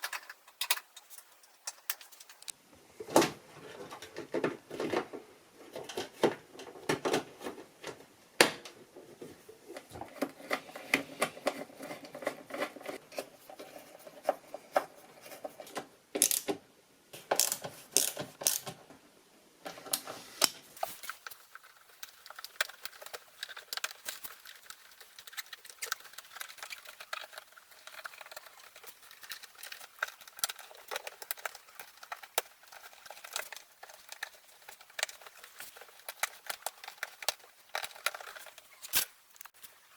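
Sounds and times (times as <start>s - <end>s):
plastic and metal parts clicking: 19.7s - 39.6s.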